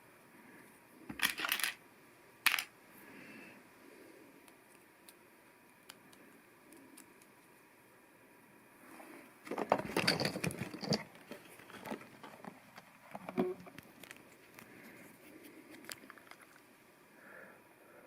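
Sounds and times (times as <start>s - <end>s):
plastic parts clicking and rattling: 1.1s - 1.8s, 2.5s - 2.7s, 9.5s - 14.2s.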